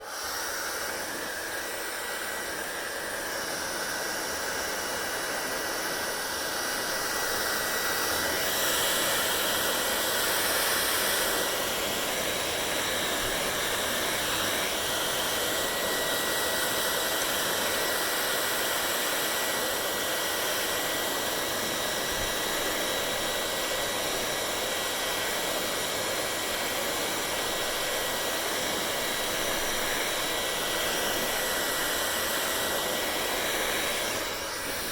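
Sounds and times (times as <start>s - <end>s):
hair dryer running: 0.0s - 34.9s.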